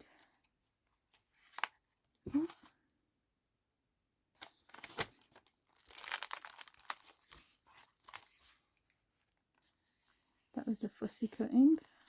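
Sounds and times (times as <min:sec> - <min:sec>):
paper pages rustling: 0:04.4 - 0:08.7.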